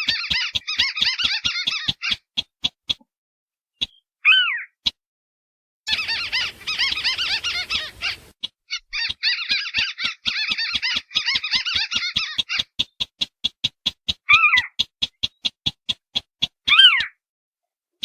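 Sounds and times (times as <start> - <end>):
bird chattering calls: 0.0 - 2.9, 5.9 - 17.1
short falling bird call: 5.9 - 8.3
sharp bird notes: 5.9 - 12.8.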